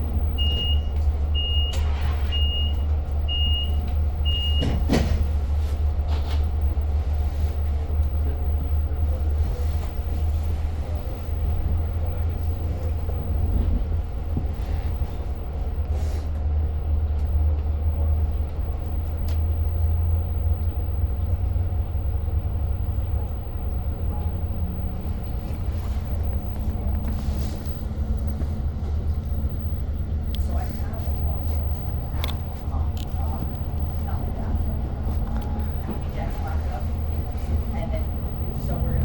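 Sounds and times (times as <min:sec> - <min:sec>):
low diesel rumble: 0:00.0 - 0:39.0
high door warning beep: 0:00.3 - 0:05.1
train doors knocking shut: 0:04.4 - 0:05.4.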